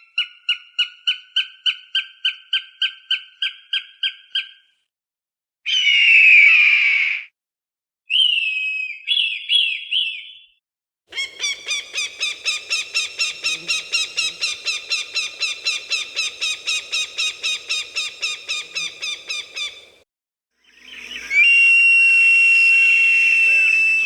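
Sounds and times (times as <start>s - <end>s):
falcon calling: 11.1s - 20.0s.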